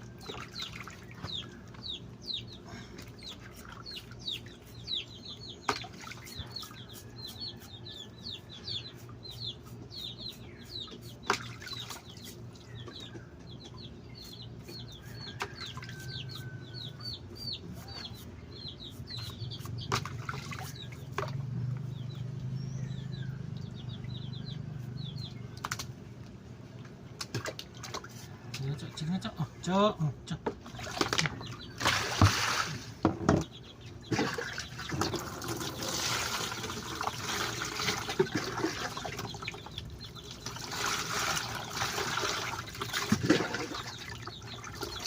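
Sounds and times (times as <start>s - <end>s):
small bird peeping: 0.1s - 26.0s, 33.3s - 40.6s, 43.6s - 45.0s.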